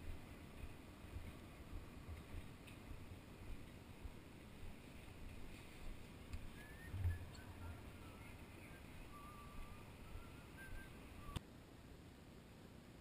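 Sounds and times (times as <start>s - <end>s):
low steady background: 0.0s - 13.0s
faint bird chirps: 6.4s - 11.4s.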